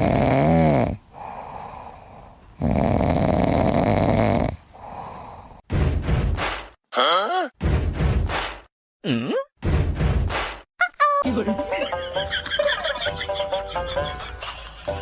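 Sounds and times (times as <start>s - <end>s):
dog snoring: 0.0s - 1.4s, 2.6s - 4.7s.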